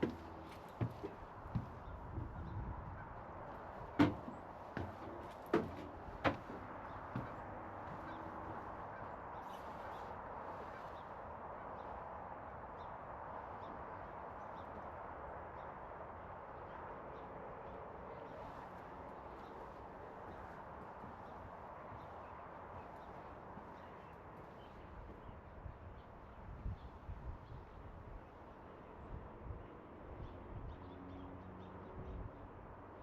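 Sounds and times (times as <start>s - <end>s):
distant waterfowl honking: 3.0s - 10.9s
sharp knocks: 4.0s - 8.1s.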